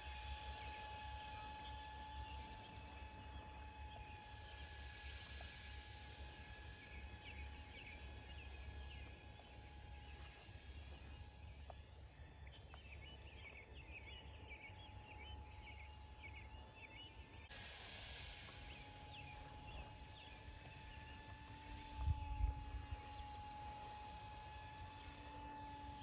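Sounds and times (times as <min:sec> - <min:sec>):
electric motor high whine: 0:00.0 - 0:05.1, 0:18.5 - 0:26.0
wind rumble on microphone: 0:18.9 - 0:23.7.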